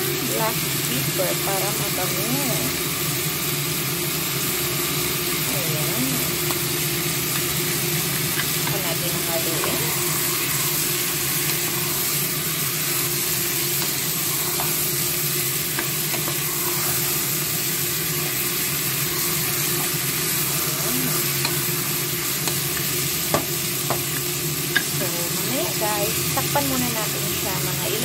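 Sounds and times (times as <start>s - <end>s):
chicken sizzling in a pan: 0.0s - 28.0s.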